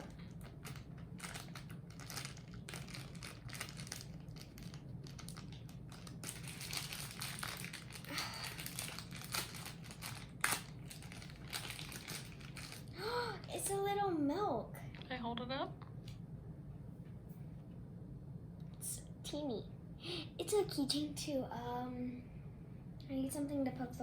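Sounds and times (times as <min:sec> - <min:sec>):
plastic packaging crinkling: 0:00.0 - 0:13.8.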